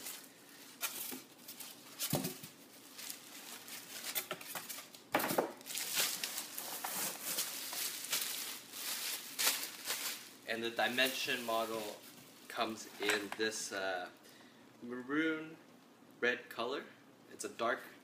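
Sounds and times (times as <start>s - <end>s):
packaging rustling: 0.0s - 12.5s.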